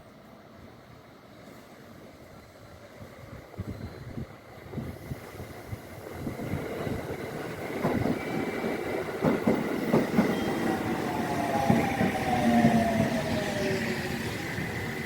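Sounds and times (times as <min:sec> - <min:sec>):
train wheels knocking on rail joints: 0:09.0 - 0:10.4.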